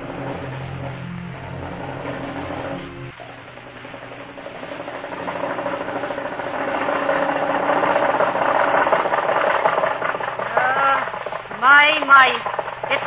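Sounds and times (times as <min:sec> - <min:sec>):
vehicle engine chugging: 0:00.0 - 0:03.2.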